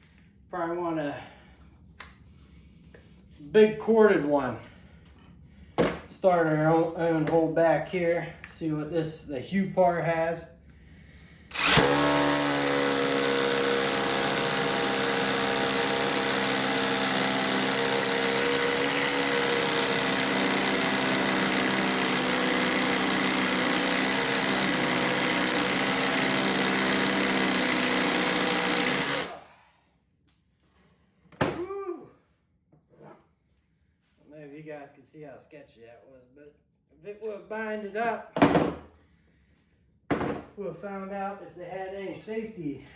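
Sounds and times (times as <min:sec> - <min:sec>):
hammer drill boring into brick: 0:11.5 - 0:29.6.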